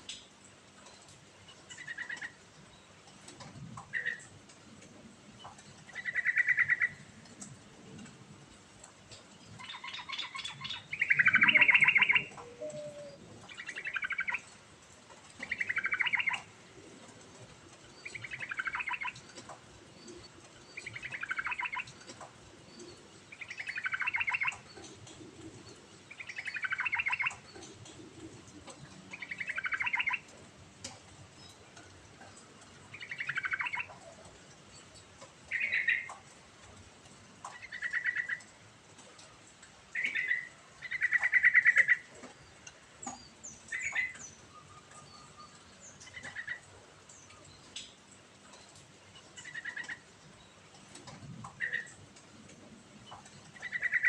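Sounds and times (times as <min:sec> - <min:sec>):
bulbul warbling song: 0:09.6 - 0:14.5, 0:15.4 - 0:16.5, 0:20.8 - 0:22.0, 0:23.3 - 0:25.0, 0:26.1 - 0:27.7, 0:29.1 - 0:30.3, 0:32.9 - 0:34.0.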